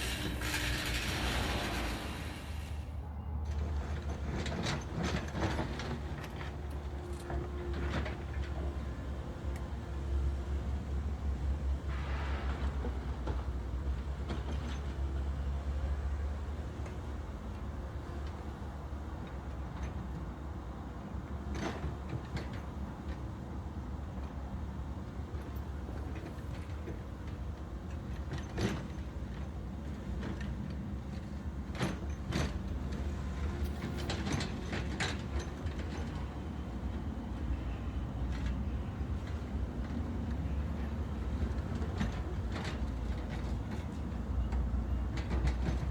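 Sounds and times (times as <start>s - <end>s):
backhoe engine rumbling: 0.0s - 6.1s.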